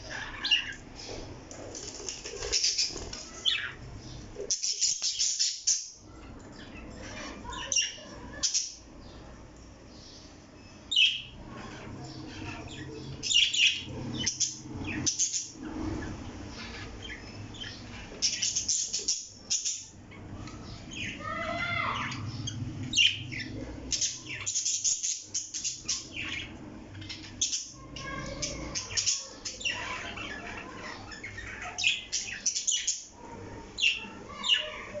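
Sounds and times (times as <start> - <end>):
parrot squawking: 0.0 - 0.8, 20.6 - 35.0.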